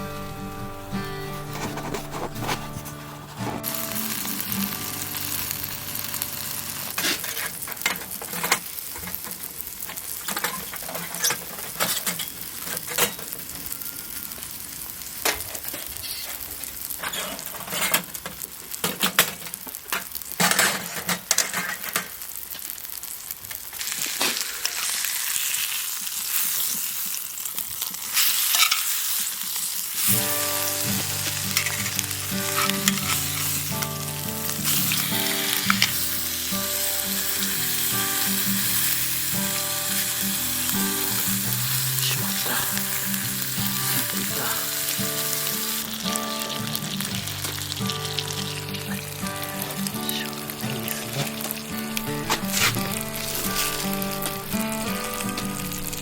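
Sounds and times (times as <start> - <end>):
music: 0.0 - 7.0, 30.0 - 56.0
food sizzling on a grill: 0.0 - 56.0.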